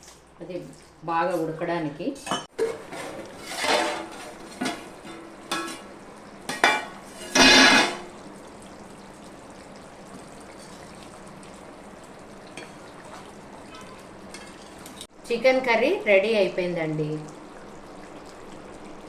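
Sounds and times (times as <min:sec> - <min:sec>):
spoon scraping a pan: 0:00.0 - 0:05.9, 0:06.5 - 0:08.1, 0:10.5 - 0:11.1, 0:12.6 - 0:15.1
curry sizzling: 0:00.0 - 0:19.0.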